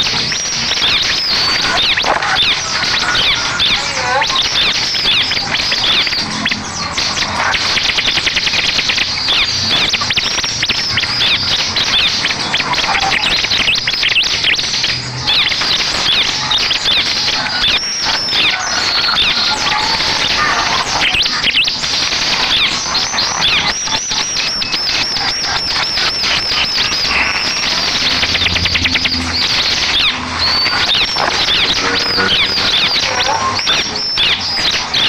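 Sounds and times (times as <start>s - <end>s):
bird chirps and trills: 0.0s - 35.0s.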